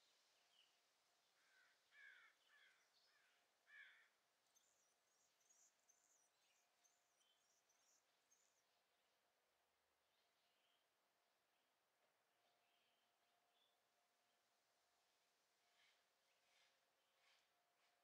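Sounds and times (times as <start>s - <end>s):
faint bird calls: 1.4s - 6.6s.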